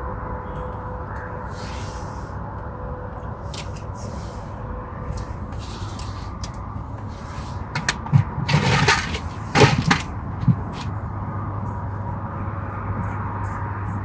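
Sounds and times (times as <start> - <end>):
rustling and clattering: 5.1 - 14.0.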